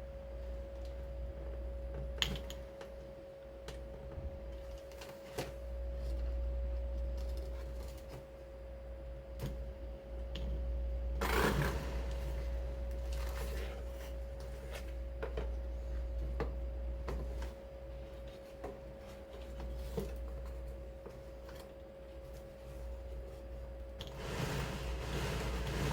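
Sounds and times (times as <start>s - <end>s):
blower motor humming: 11.1s - 14.4s, 24.0s - 25.9s
low rumble: 11.6s - 13.5s.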